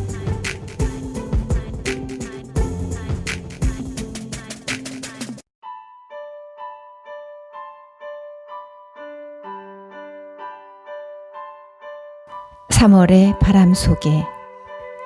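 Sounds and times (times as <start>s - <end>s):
loud music: 0.0s - 5.4s
soft piano melody: 5.6s - 15.0s.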